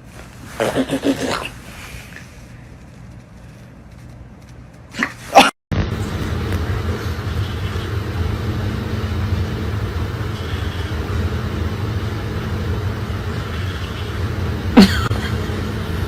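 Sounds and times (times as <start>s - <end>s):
steady low rumble: 5.7s - 16.0s.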